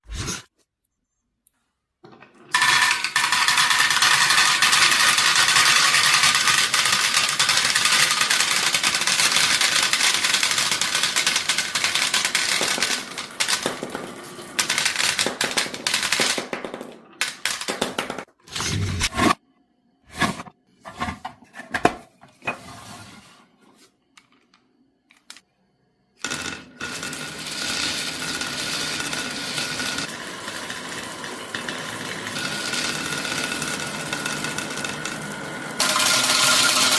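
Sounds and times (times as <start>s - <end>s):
marbles clattering down a marble run: 2.5s - 18.3s, 26.2s - 36.9s.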